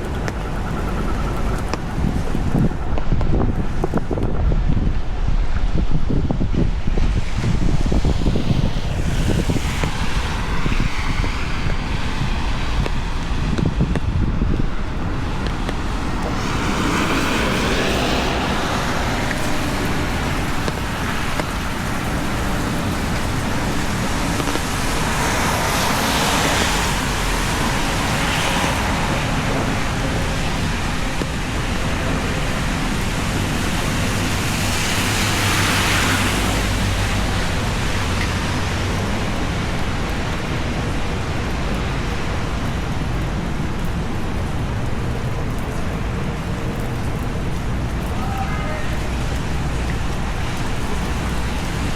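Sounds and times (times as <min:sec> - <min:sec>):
cars passing on wet road: 0:00.0 - 0:51.9
rain hiss: 0:00.0 - 0:51.9.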